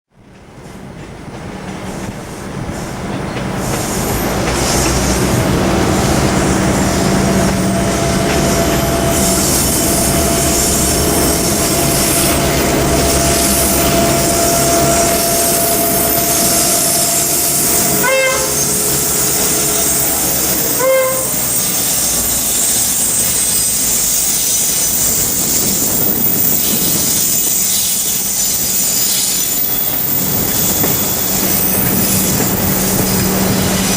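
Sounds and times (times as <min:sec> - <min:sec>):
train wheels on rails: 0:00.1 - 0:33.9
wheel squeal: 0:03.6 - 0:33.9
train horn blasts: 0:04.6 - 0:24.8.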